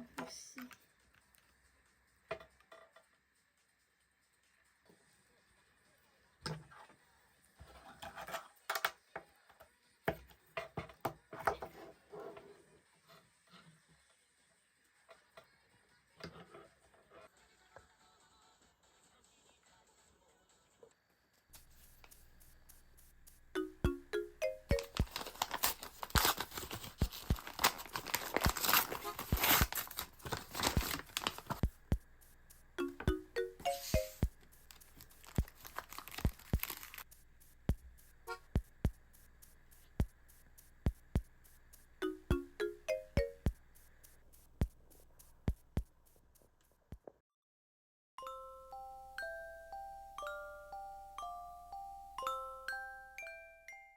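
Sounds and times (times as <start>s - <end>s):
sharp clicks and taps: 21.6s - 47.0s
rustling: 24.7s - 32.8s, 33.7s - 42.0s
packaging crinkling and tearing: 24.8s - 31.6s, 34.6s - 37.1s.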